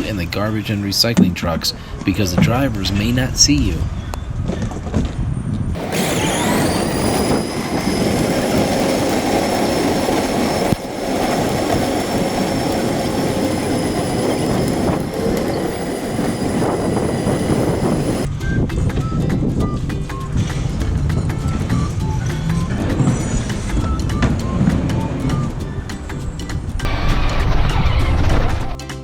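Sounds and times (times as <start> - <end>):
high-pitched whine: 5.8 - 18.3
low engine rumble: 5.8 - 28.7.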